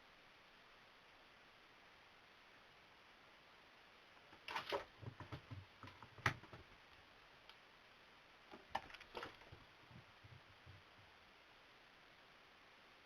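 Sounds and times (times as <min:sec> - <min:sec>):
cat toy clicks and knocks: 0:04.2 - 0:06.7.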